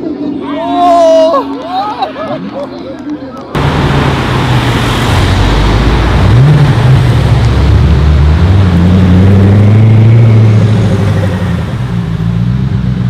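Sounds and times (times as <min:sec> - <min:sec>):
car engine accelerating hard: 0:03.6 - 0:13.0.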